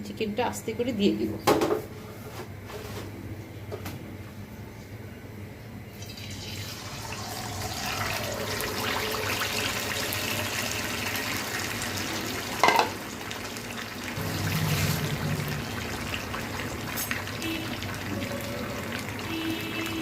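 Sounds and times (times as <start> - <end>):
oil sizzling: 6.0 - 20.0.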